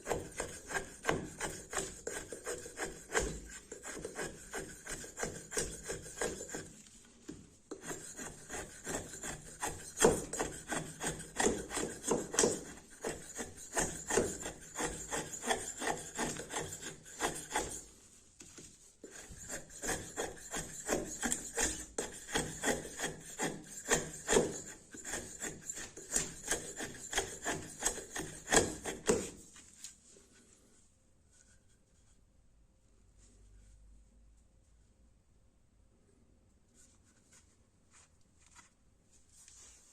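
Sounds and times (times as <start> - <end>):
knife scraping wood: 0.0 - 30.0.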